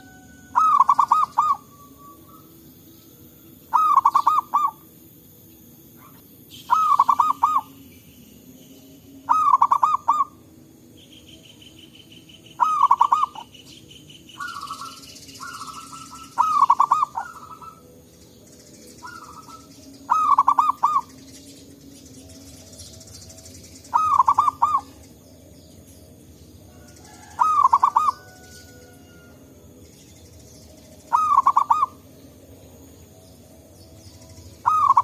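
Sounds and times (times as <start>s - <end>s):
doves cooing: 0.0s - 4.9s, 5.9s - 7.8s, 9.2s - 10.6s, 12.4s - 18.1s, 18.9s - 26.0s, 26.6s - 29.7s, 31.0s - 32.1s, 34.4s - 35.0s
faint high pulsing buzz: 0.0s - 35.0s.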